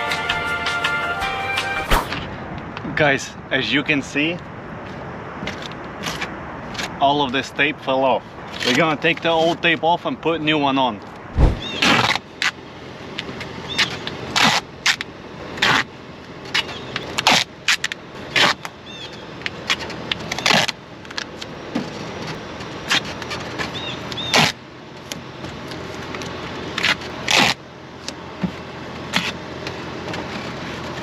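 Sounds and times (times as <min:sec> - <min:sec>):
duct tape tearing: 0:17.2 - 0:18.7, 0:19.7 - 0:20.8, 0:24.1 - 0:24.6, 0:26.8 - 0:27.6.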